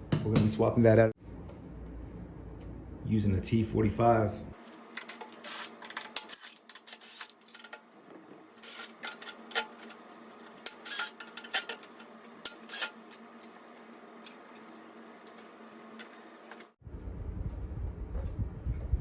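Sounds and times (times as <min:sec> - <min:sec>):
metal tools clinking and scraping: 0:08.6 - 0:13.0.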